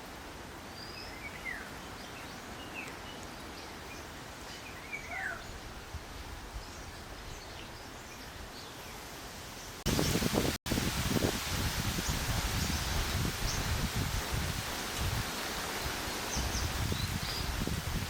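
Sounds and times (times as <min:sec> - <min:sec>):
steady outdoor hiss: 0:00.0 - 0:18.0
small birds chirping: 0:16.2 - 0:17.8.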